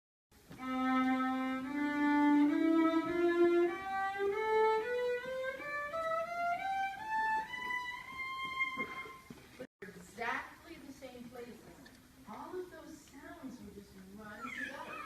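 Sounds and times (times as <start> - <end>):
violin playing ascending scale: 0.6 - 9.3.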